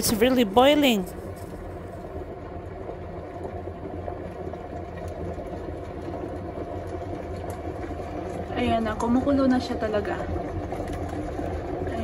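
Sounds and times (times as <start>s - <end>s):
low hum: 0.0s - 12.0s
water boiling in pot: 0.0s - 12.0s.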